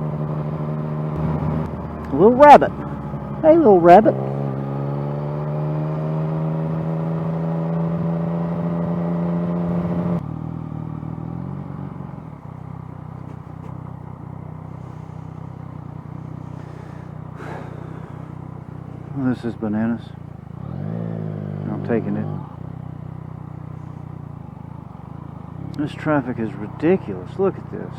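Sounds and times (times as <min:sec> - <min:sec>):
motorcycle engine revving: 0:00.0 - 0:27.9.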